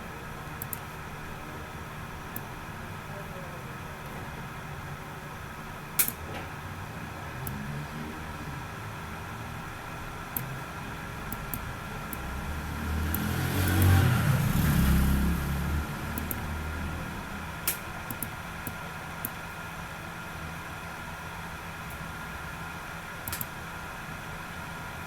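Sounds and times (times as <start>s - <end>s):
steady background hum: 0.0s - 13.3s, 14.0s - 25.0s
sharp clicks: 0.6s - 0.9s, 6.0s - 6.2s, 13.0s - 14.0s, 16.1s - 16.5s, 17.6s - 19.4s, 23.2s - 23.6s
vehicle passing by: 7.3s - 9.7s, 12.2s - 17.6s.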